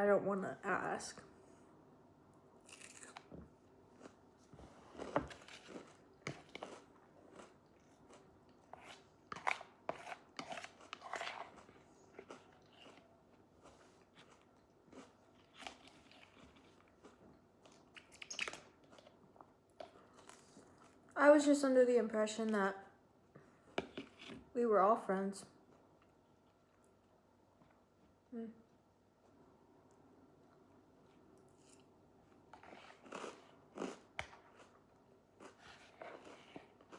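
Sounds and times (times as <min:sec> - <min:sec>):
food crunching: 0:02.6 - 0:04.2, 0:04.9 - 0:21.0
person chewing food: 0:02.6 - 0:21.0, 0:29.9 - 0:36.9.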